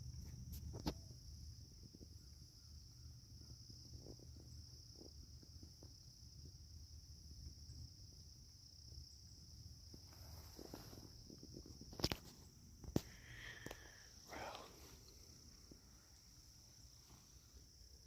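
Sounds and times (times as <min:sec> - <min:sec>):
crickets chirping: 0:00.0 - 0:18.0
soft ticks and rustles: 0:09.8 - 0:17.6.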